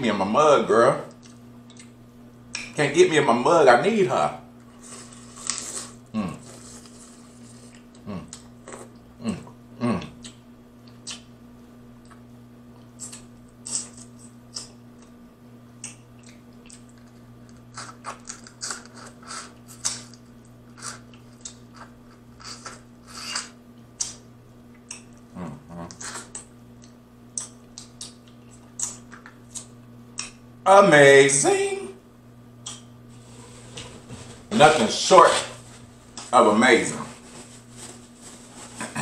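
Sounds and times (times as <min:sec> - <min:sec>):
steady low hum: 0:00.0 - 0:39.0
wet chewing and lip-smacking: 0:01.1 - 0:02.7, 0:10.2 - 0:11.3, 0:15.8 - 0:25.3, 0:25.9 - 0:30.4
person humming mm: 0:06.1 - 0:06.6, 0:08.0 - 0:08.4, 0:09.2 - 0:10.3, 0:25.3 - 0:26.0.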